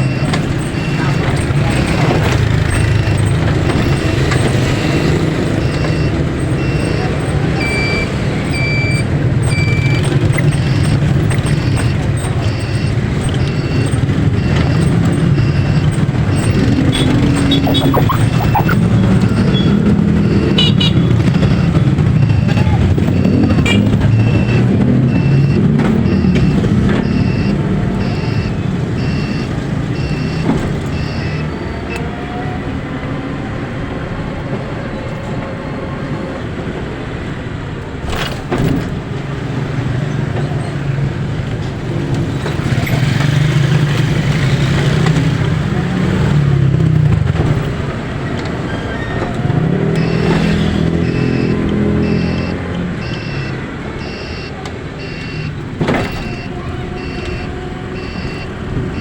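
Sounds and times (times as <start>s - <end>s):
traffic noise: 0.0s - 59.0s
vehicle engine revving: 9.2s - 30.3s, 49.3s - 54.2s
high electronic beeps: 11.6s - 23.4s, 50.0s - 55.5s.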